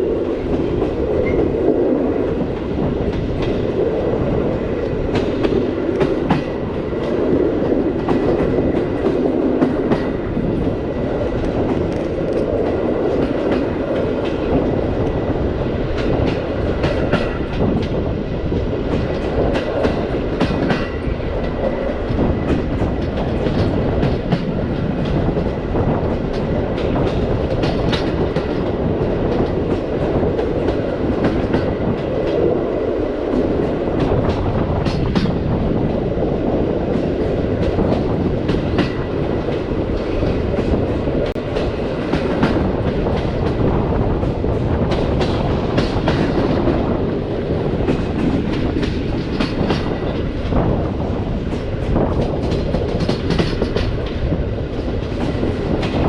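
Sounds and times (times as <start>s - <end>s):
train wheels rumbling on rails: 0.0s - 56.0s
wheels clacking over rail joints: 18.8s - 32.5s, 36.9s - 50.7s.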